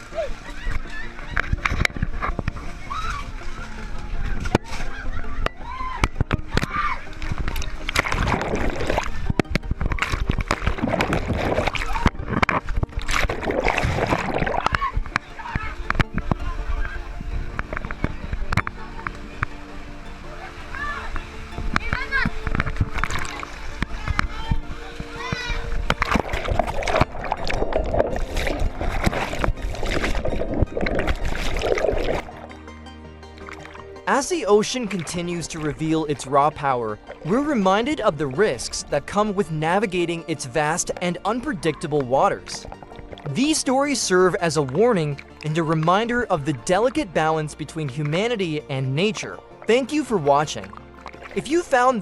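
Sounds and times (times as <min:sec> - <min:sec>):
water splashing around a boat: 0:00.0 - 0:32.6, 0:33.4 - 0:52.0
wind on microphone: 0:00.7 - 0:19.5, 0:20.7 - 0:32.3
people shouting: 0:02.8 - 0:07.1, 0:14.6 - 0:15.8, 0:20.3 - 0:21.2.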